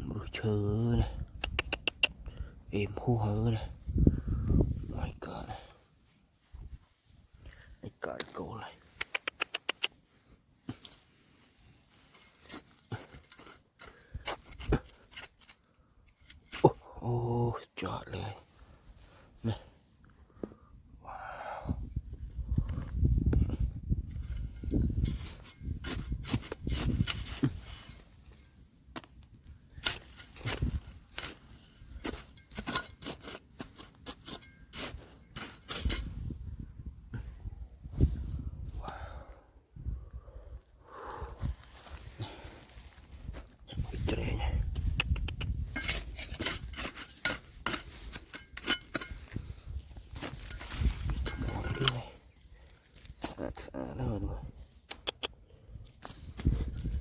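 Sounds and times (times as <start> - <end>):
digging tool scraping gravel: 11.8 - 16.8, 24.1 - 36.4, 45.2 - 53.6.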